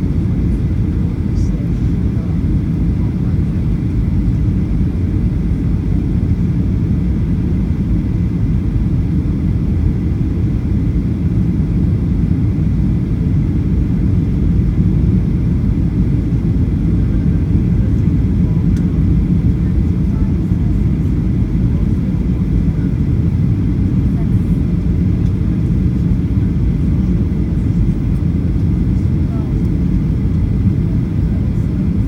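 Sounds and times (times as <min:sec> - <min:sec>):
airplane cabin rumble: 0:00.0 - 0:32.0.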